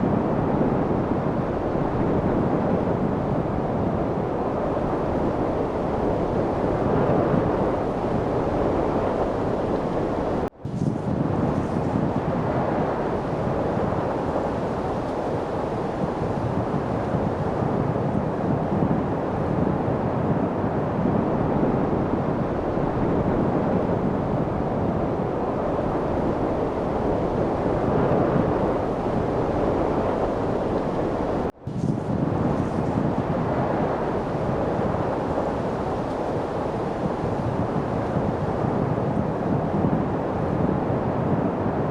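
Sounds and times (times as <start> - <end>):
light wind noise: 0.0 - 41.9.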